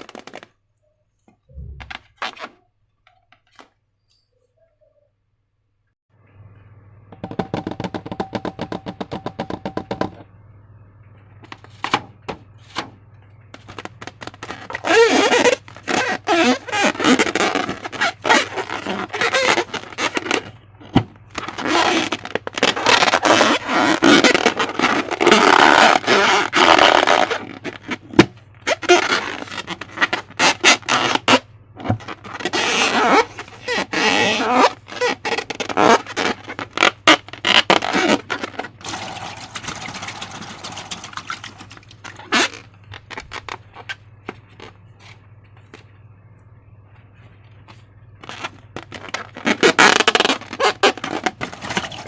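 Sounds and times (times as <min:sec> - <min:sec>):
slime squelching and crackling: 0:32.0 - 0:44.7.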